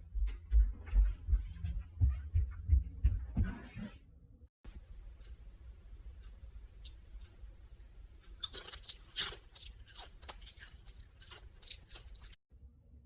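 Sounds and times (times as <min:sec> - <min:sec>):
loud crunchy chewing: 0:08.2 - 0:12.4.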